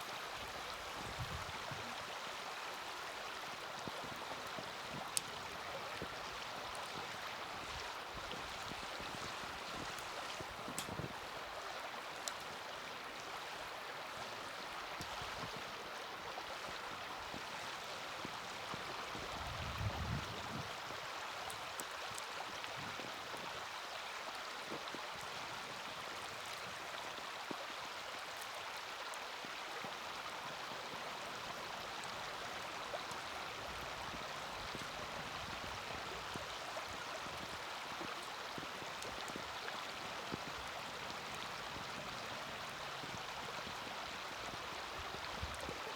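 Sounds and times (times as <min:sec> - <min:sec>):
wood fire crackling: 0:02.8 - 0:12.6, 0:32.0 - 0:42.1.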